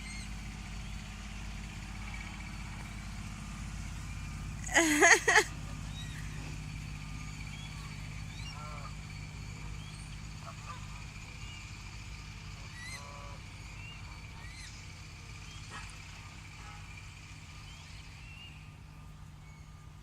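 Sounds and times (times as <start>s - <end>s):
geese honking: 1.4s - 11.7s, 12.3s - 17.5s.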